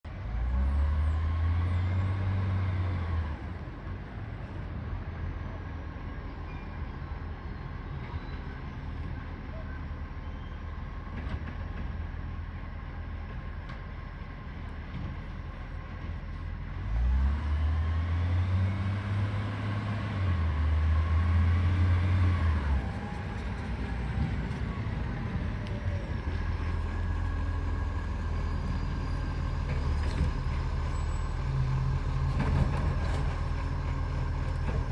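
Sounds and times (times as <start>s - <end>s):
diesel truck engine running: 12.2s - 34.9s.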